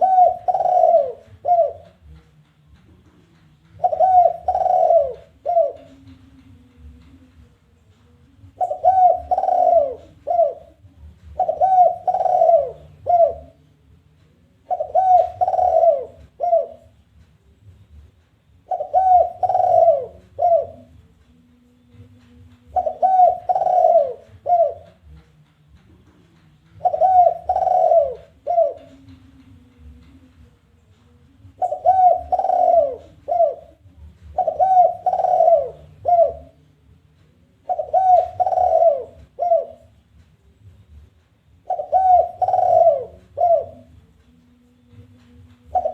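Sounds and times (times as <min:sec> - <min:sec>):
dove cooing call: 0:00.0 - 0:02.1, 0:03.7 - 0:06.4, 0:08.4 - 0:13.6, 0:14.6 - 0:17.0, 0:18.6 - 0:21.0, 0:22.7 - 0:25.2, 0:26.7 - 0:30.0, 0:31.5 - 0:36.6, 0:37.6 - 0:40.0, 0:41.6 - 0:44.0, 0:45.6 - 0:45.9
faint low hum: 0:00.0 - 0:45.9.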